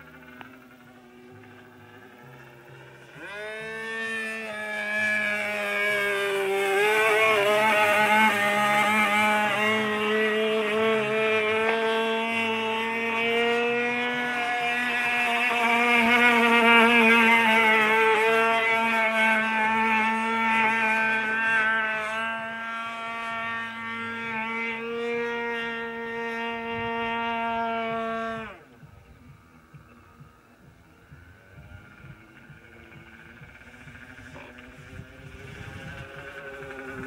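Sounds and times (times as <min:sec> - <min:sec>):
model plane engine running: 0:00.0 - 0:37.0.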